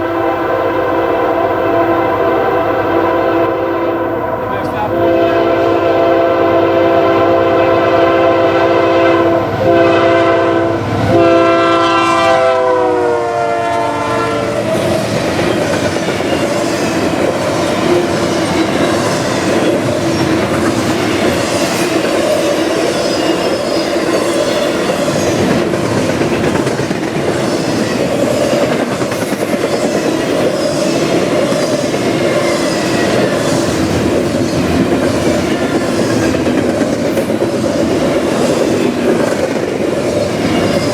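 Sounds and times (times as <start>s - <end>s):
locomotive horn chord: 0.0s - 14.6s
train cars rumbling by: 0.0s - 40.9s.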